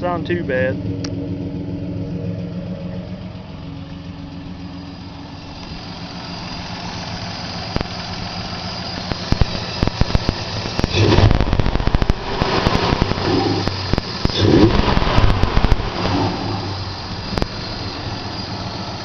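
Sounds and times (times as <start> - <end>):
truck engine idling: 0.0 - 19.0
hiss: 6.2 - 19.0.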